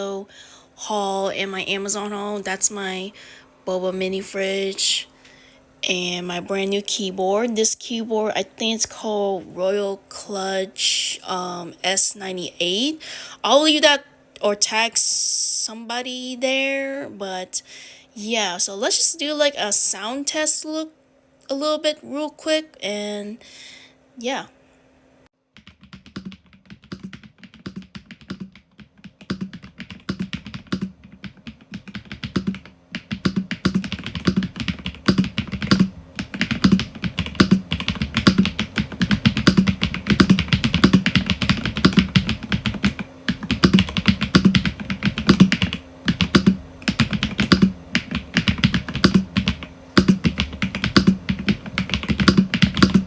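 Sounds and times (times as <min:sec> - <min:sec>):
mechanical keyboard typing: 0:25.6 - 0:53.0.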